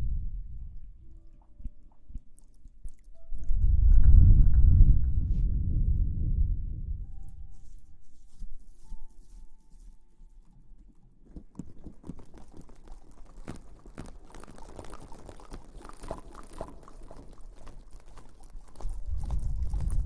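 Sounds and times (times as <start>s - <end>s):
low rumble: 0.0s - 1.1s, 3.3s - 7.6s
rustling and crackling: 7.3s - 20.0s.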